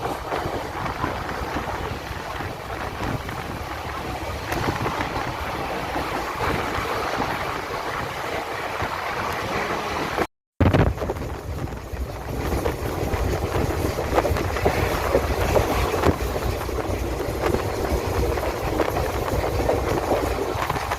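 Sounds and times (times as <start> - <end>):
passenger train rumbling: 0.0 - 20.9
wind buffeting microphone: 0.0 - 20.9
train wheels knocking: 11.2 - 20.9.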